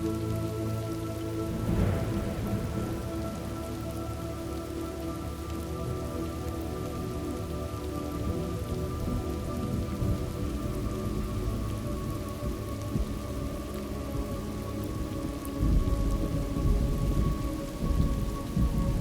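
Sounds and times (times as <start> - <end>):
soft droning tones: 0.0 - 19.0
steady rain: 0.0 - 19.0
thunder rolling: 1.5 - 6.0.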